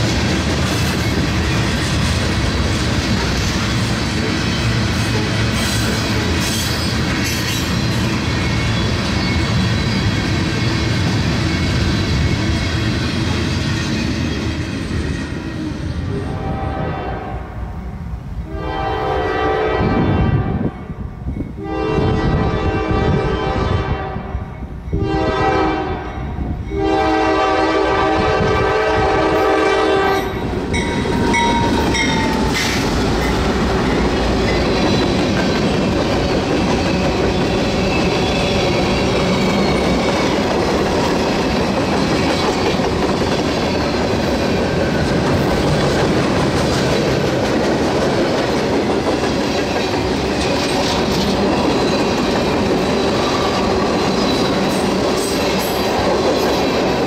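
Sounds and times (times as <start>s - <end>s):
train rumbling: 0.0s - 57.0s
locomotive air horn: 16.1s - 17.6s, 18.4s - 20.8s, 21.6s - 24.4s, 25.0s - 30.4s
wheel clickety-clack: 30.8s - 57.0s.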